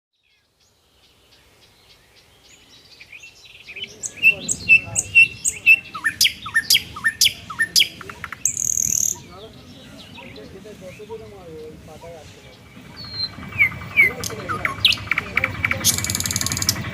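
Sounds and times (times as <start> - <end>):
songbirds chirping: 0.1 - 16.9
sharp down-slurred bird calls: 0.2 - 16.9
low background rush: 3.4 - 16.9.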